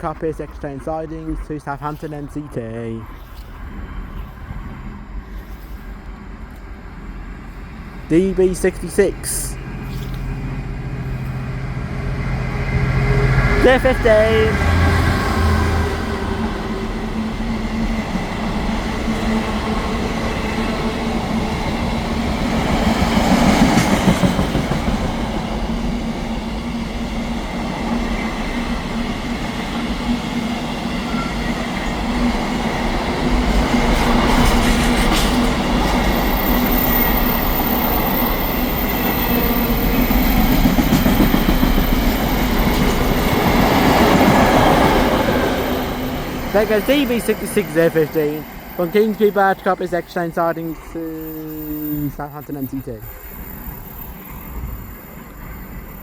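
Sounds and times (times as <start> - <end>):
freight train wheels rumbling: 0.0 - 56.0
wheels clacking over rail joints: 31.0 - 49.7.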